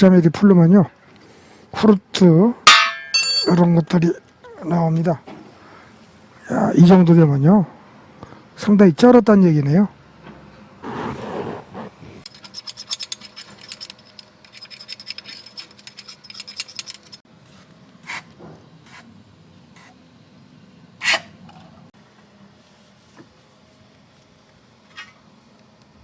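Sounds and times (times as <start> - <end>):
metal parts clicking and scraping: 12.3 - 17.2.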